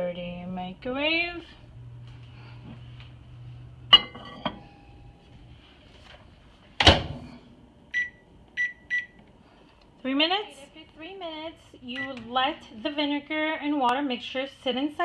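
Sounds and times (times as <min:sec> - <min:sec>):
microwave door thud: 0:06.8 - 0:07.3
keypad beeps: 0:07.9 - 0:09.2.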